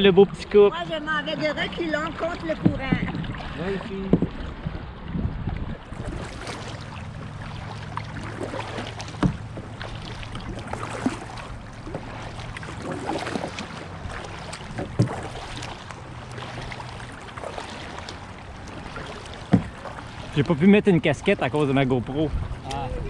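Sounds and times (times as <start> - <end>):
paddle strokes splashing water: 0.9 - 23.0
sharp knocks: 9.1 - 9.7, 19.5 - 19.8.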